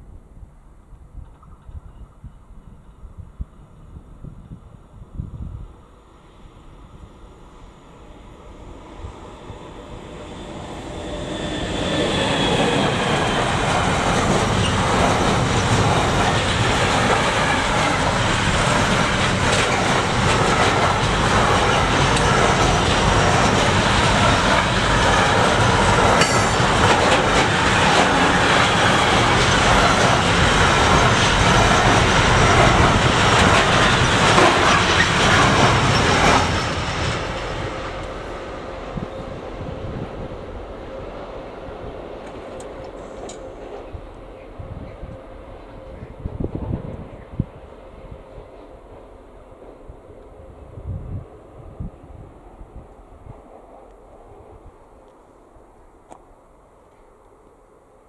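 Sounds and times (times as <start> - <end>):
train wheels clattering over rails: 9.0 - 39.0.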